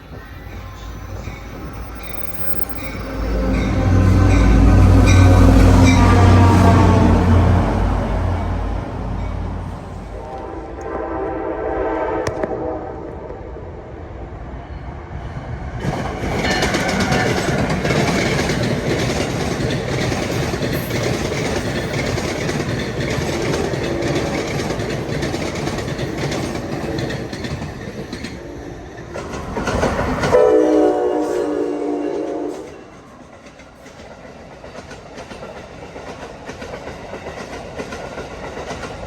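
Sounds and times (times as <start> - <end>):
train wheels rushing on rails: 0.0 - 39.0
train horn: 2.3 - 9.2, 10.0 - 13.6, 30.3 - 32.9
clickety-clack over rail joints: 15.8 - 30.6, 32.2 - 39.0.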